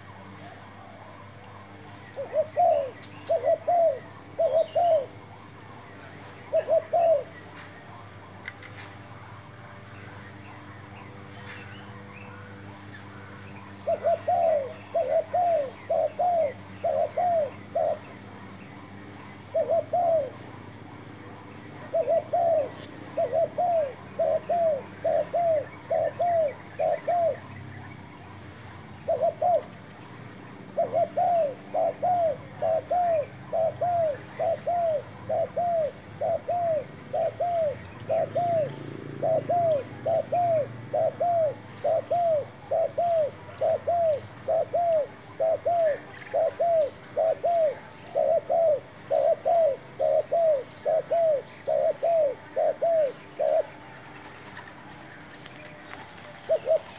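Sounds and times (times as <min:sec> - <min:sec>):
dove cooing: 0:02.1 - 0:05.4, 0:06.0 - 0:07.5, 0:13.2 - 0:18.2, 0:19.4 - 0:20.6, 0:21.7 - 0:27.5, 0:29.0 - 0:29.9, 0:30.7 - 0:54.0, 0:56.1 - 0:56.9.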